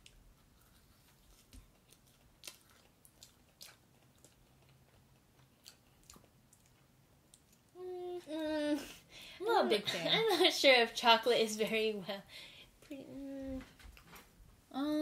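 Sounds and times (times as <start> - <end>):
people chewing: 0.0 - 7.8.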